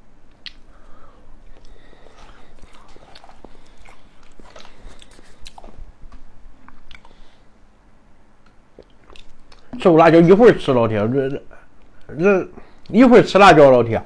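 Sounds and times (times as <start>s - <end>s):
mouth clicks and smacks: 0.3s - 0.7s, 8.4s - 9.8s
person chewing food: 0.4s - 7.4s, 8.4s - 9.8s.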